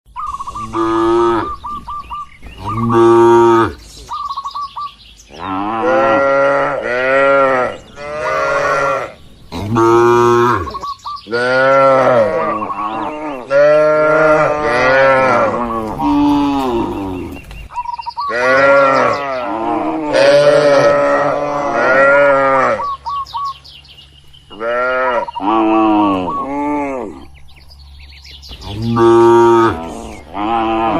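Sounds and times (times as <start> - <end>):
cattle mooing: 0.5 - 1.6, 2.6 - 3.8, 5.3 - 17.4, 18.3 - 23.0, 24.5 - 27.3, 28.6 - 30.9.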